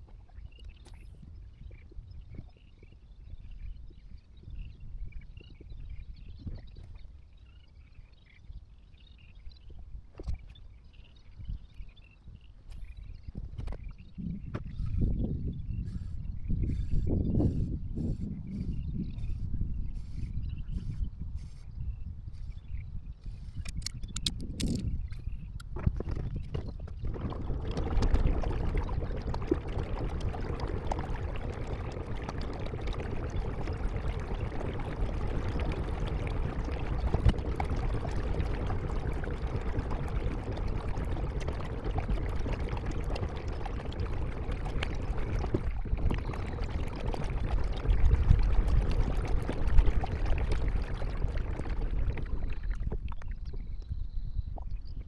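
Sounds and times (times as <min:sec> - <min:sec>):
water splashing and trickling: 0:23.6 - 0:54.0.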